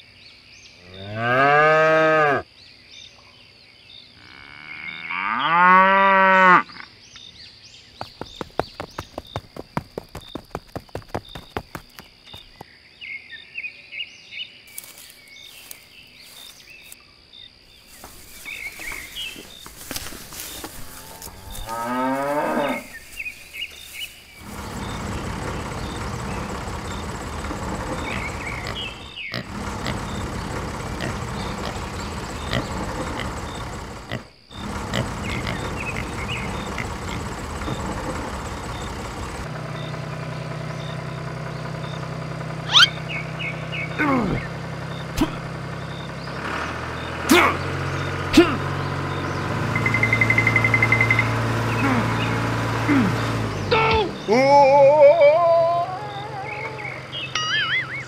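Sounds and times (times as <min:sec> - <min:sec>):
cow mooing: 0:00.8 - 0:02.4, 0:04.2 - 0:06.9, 0:20.8 - 0:23.1, 0:27.0 - 0:38.4
tractor engine running: 0:08.0 - 0:12.6, 0:17.9 - 0:55.0.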